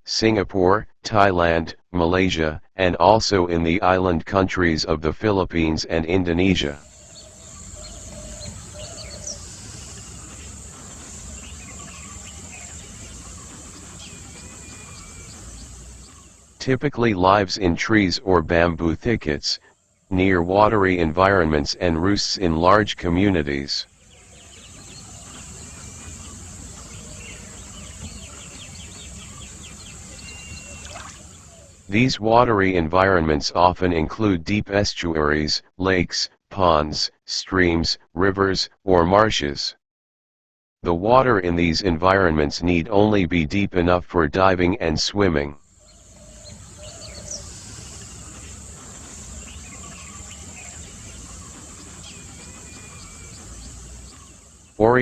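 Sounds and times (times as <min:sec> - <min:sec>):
small birds chirping: 0:06.6 - 0:16.6, 0:19.6 - 0:32.0, 0:45.6 - 0:55.0
short bird chirps: 0:23.9 - 0:31.9
high-pitched insect drone: 0:45.8 - 0:54.7.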